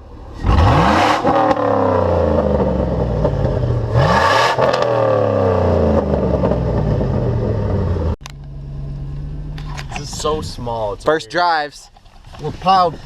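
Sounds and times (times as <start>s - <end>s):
truck engine revving: 0.3s - 8.4s.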